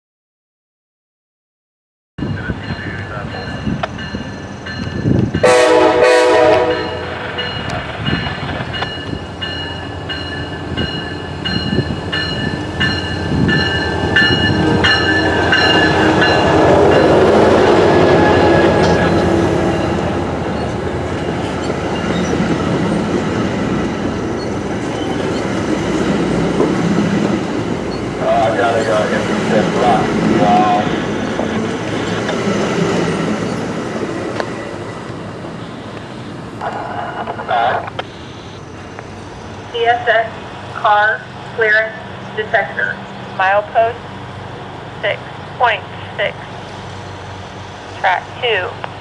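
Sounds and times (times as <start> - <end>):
train rumble: 2.2 - 49.0
train horn blast: 5.4 - 7.5, 14.3 - 20.8.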